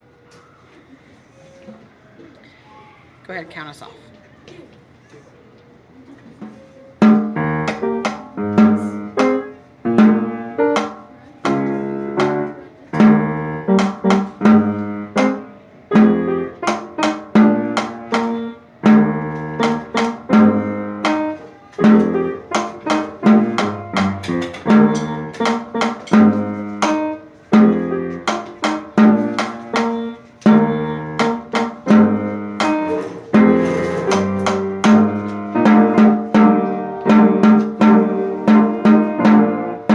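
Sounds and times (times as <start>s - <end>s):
drums playing steady beat: 7.0s - 39.9s
sharply struck pitched notes: 7.0s - 39.9s
band music: 11.5s - 39.9s.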